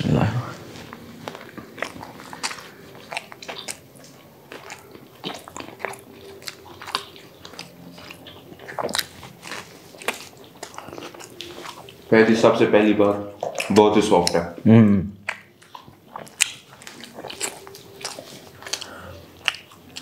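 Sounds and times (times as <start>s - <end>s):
people chewing food: 0.0s - 20.0s
wet mouth clicks and smacks: 13.4s - 14.4s, 15.2s - 20.0s.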